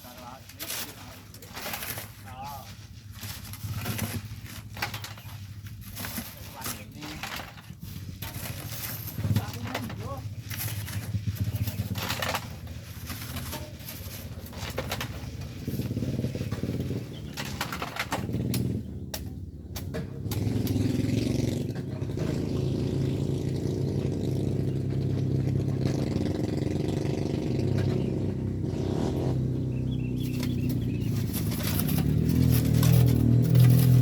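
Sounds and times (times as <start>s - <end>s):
knocks and clatter: 3.1s - 28.7s, 30.1s - 34.0s
vehicle engine running: 7.9s - 34.0s.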